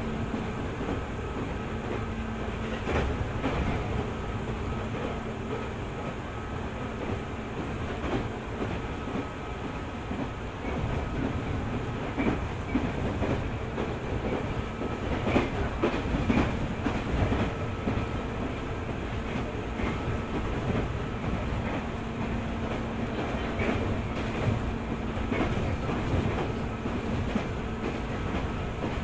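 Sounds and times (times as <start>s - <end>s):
electric train rumbling: 0.0s - 29.0s.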